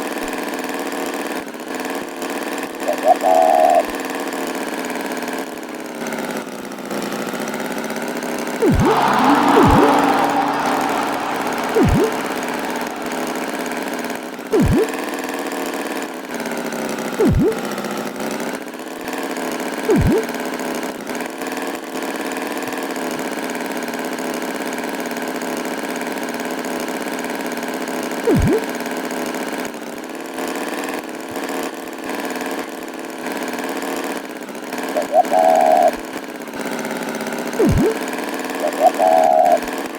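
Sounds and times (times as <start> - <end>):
tractor engine humming: 8.6 - 13.9.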